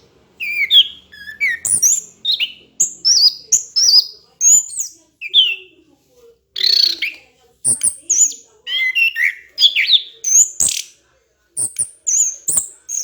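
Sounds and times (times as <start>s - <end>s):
thrush singing whistled notes: 0.0s - 5.7s.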